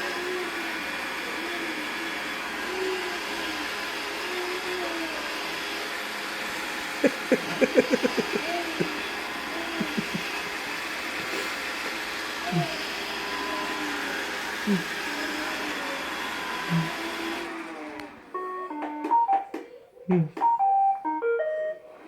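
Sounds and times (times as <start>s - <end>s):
robot vacuum whirring: 1.8s - 18.9s.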